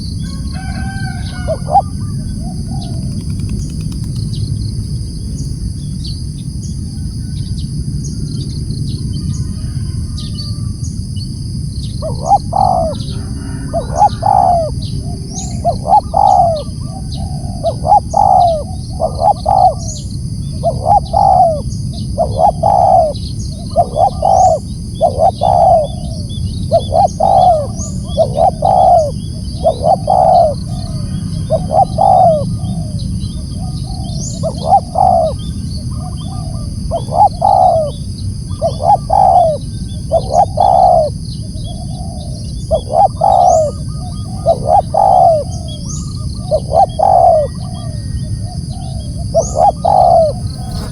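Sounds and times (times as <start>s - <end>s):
dove cooing: 0.0s - 5.9s, 11.9s - 50.9s
steady high hiss: 49.7s - 50.9s.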